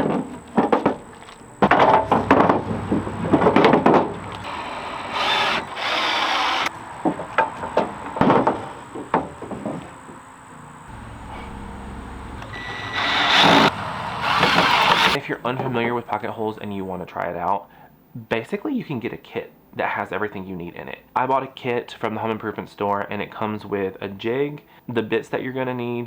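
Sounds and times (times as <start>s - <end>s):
wooden boards knocking: 0.0s - 4.5s
boards scraping: 0.0s - 10.0s, 10.9s - 15.2s.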